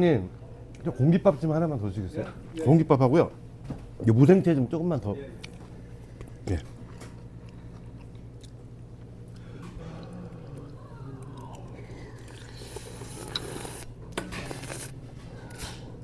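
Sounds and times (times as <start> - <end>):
person chewing food: 5.4 - 13.9.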